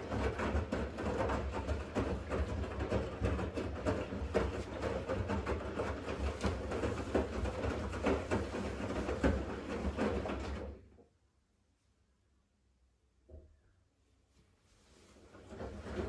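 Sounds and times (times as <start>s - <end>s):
laundry tumbling and water sloshing: 0.0s - 11.0s, 14.8s - 16.0s
washing machine motor hum: 0.0s - 11.0s, 15.2s - 16.0s.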